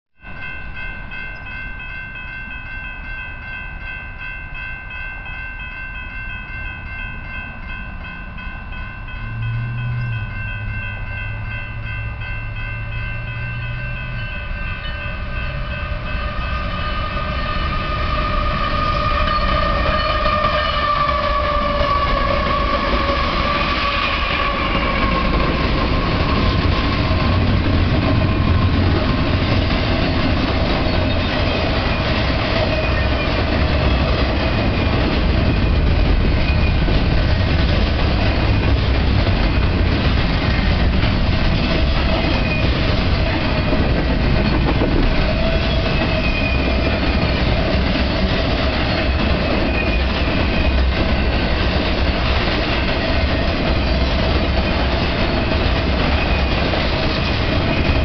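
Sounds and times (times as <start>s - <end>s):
crossing bell ringing: 0.2s - 58.0s
train rumble: 0.2s - 58.0s
locomotive horn: 15.5s - 25.4s.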